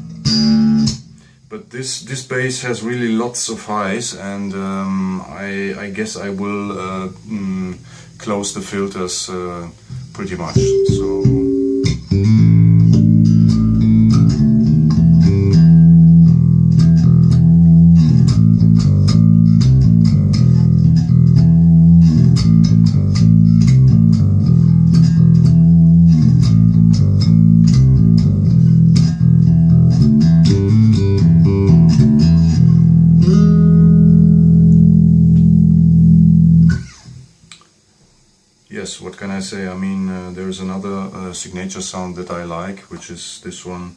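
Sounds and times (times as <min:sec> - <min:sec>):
electric bass playing solo: 0:10.6 - 0:37.1.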